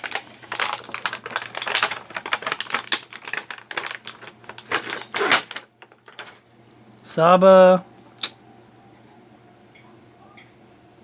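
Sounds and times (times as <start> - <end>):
plastic pieces clicking: 0.0 - 6.4.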